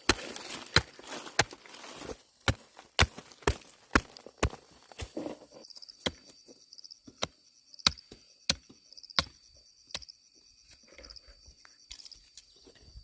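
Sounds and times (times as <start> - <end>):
sharp chopping strikes: 2.4 - 4.6.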